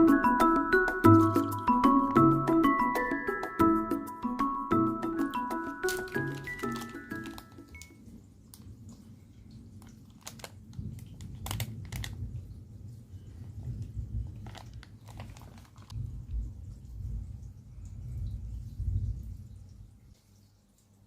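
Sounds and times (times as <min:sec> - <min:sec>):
crisp crunches: 0:05.8 - 0:07.9, 0:09.8 - 0:12.2, 0:14.4 - 0:16.0.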